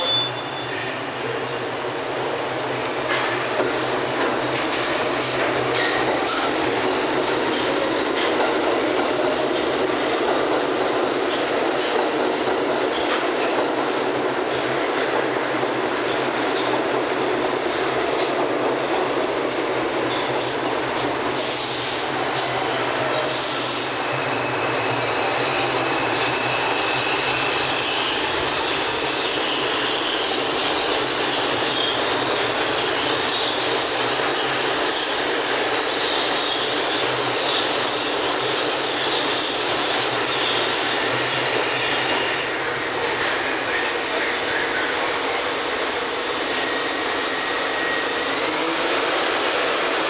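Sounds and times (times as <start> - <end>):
high wheel squeal: 0.0 - 1.0, 21.6 - 33.8
subway train rumbling: 0.0 - 50.0.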